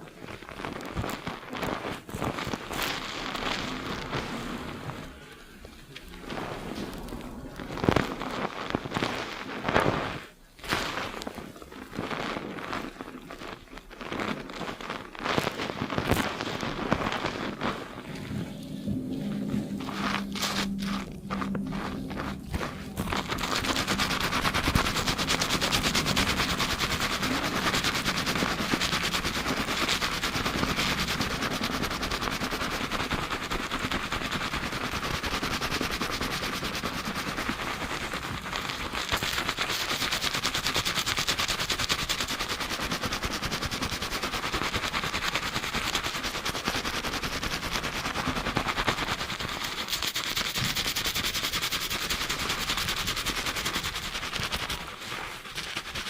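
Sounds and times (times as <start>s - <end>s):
hands scrubbing lathered hair: 0.0s - 56.0s.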